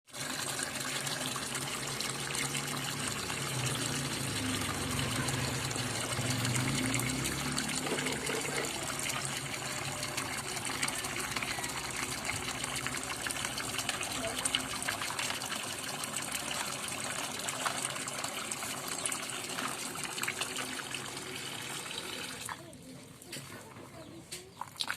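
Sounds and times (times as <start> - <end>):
water gushing: 0.1 - 23.5, 24.5 - 24.9.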